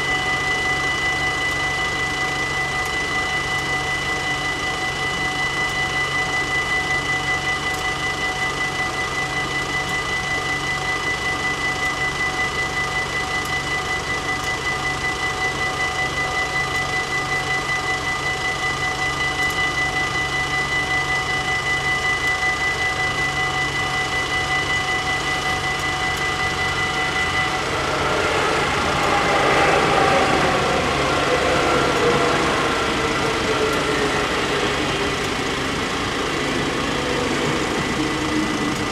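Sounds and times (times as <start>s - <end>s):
train passing with whine: 0.0s - 38.9s
level-crossing warning bells ringing: 23.0s - 38.9s.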